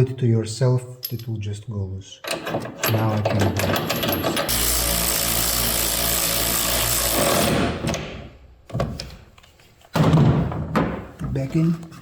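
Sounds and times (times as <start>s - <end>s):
power tool running: 4.5s - 7.8s.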